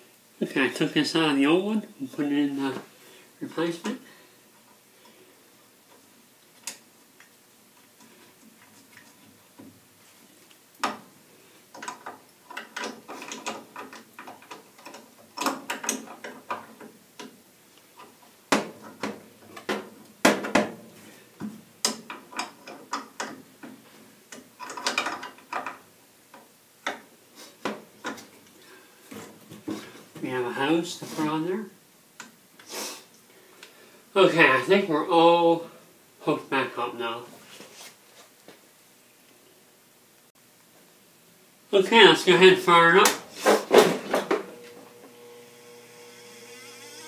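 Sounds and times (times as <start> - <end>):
clinks and knocks of fittings: 11.7 - 17.4, 21.8 - 25.8.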